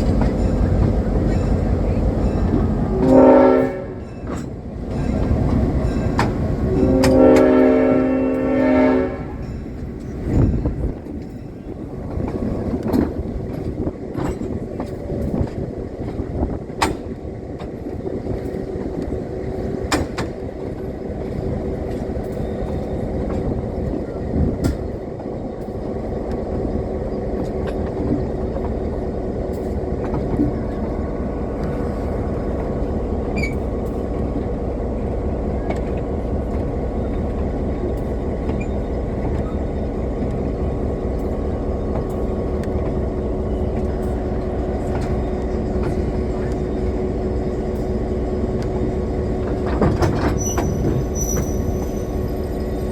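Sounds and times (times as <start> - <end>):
train rumbling along track: 0.0 - 52.9.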